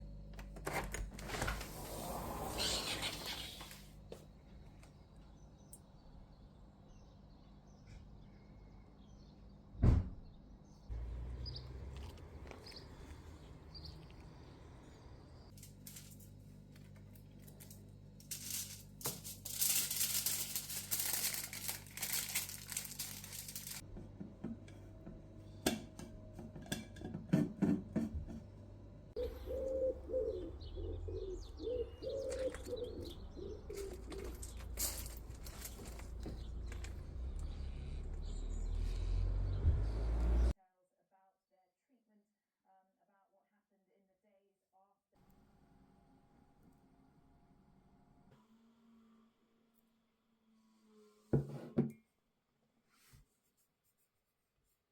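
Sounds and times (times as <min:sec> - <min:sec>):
birds chirping: 0:10.7 - 0:15.5, 0:29.2 - 0:40.5
pigeon cooing: 0:29.2 - 0:34.8.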